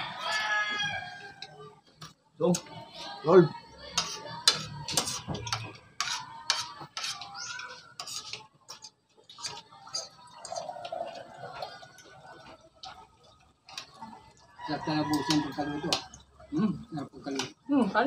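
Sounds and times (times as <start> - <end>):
cutlery clinking on plates: 3.9 - 11.9, 15.1 - 16.2.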